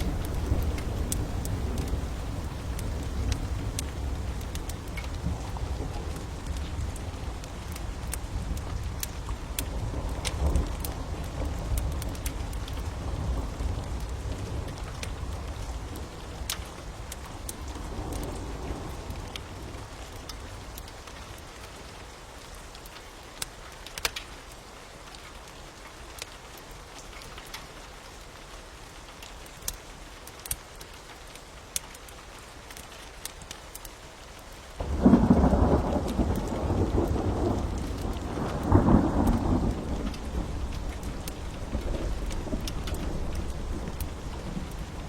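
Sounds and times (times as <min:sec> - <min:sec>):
thunder rumbling: 0:00.0 - 0:20.0, 0:34.8 - 0:45.0
steady rain: 0:00.0 - 0:45.0
wood fire crackling: 0:00.0 - 0:45.0.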